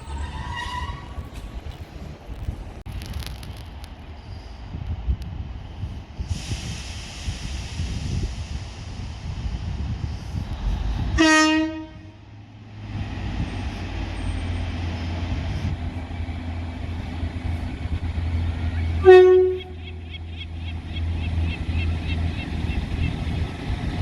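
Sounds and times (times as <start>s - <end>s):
train diesel engine running: 0.0s - 24.0s
train horn tones: 11.2s - 12.2s, 18.8s - 20.2s.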